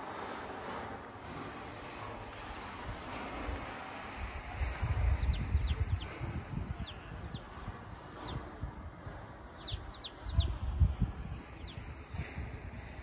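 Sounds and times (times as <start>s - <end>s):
wind rumbling on microphone: 0.0s - 13.0s
birds giving falling calls: 5.1s - 8.6s, 9.5s - 10.6s, 11.4s - 12.1s.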